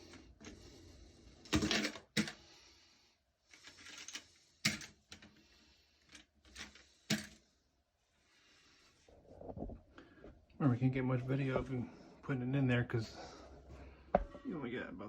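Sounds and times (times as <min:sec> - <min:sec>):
plastic parts clicking and knocking: 0:01.4 - 0:02.4, 0:03.5 - 0:05.4, 0:06.0 - 0:07.4.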